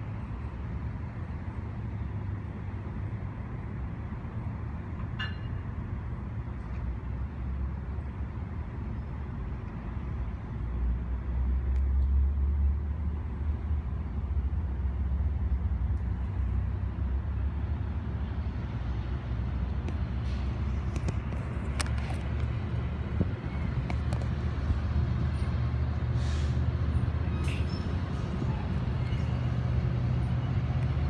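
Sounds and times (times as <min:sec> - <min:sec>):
train wheels rumbling on rail: 0:15.6 - 0:31.0.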